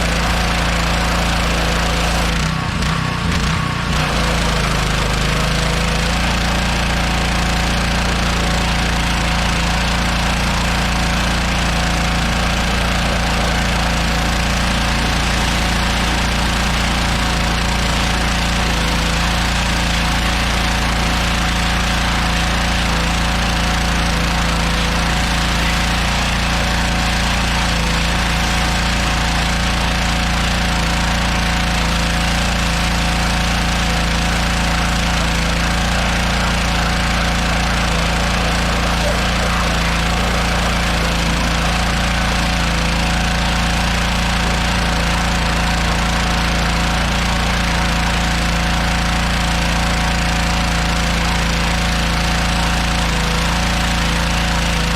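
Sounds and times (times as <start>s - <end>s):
pressure washer engine running: 0.0s - 54.9s
water spray hissing: 32.9s - 43.7s.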